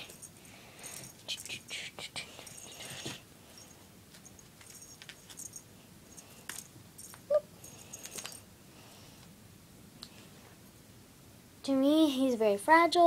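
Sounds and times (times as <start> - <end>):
kitten mewing: 7.2 - 7.6.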